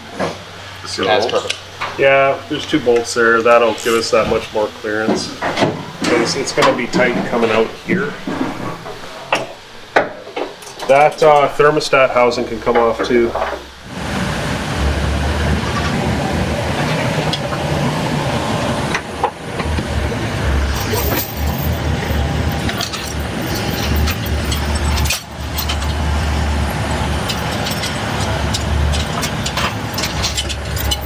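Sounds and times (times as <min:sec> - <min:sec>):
truck engine humming: 0:13.8 - 0:31.0.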